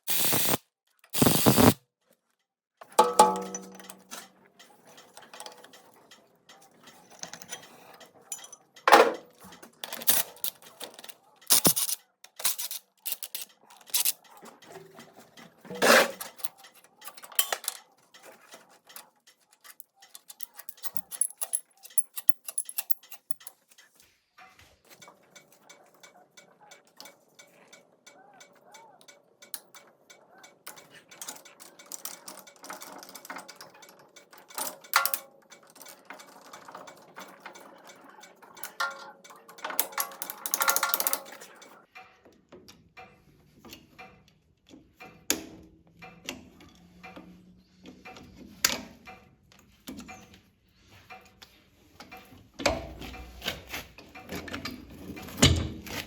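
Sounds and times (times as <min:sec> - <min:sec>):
metal tools clinking: 0:02.9 - 0:24.0, 0:34.5 - 0:41.8.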